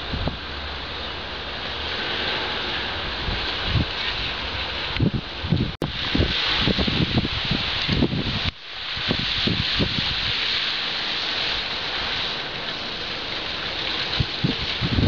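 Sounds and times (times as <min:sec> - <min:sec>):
rain hissing: 0:00.0 - 0:15.0
wind buffeting microphone: 0:00.0 - 0:15.0.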